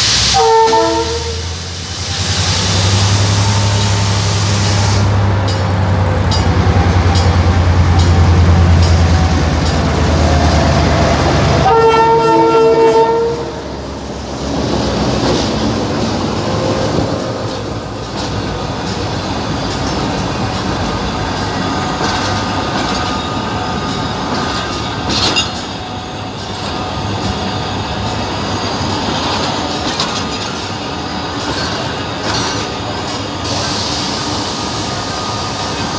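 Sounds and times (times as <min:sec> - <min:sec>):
diesel locomotive engine drone: 0:00.0 - 0:35.9
train horn blast: 0:00.1 - 0:01.8, 0:11.4 - 0:13.7.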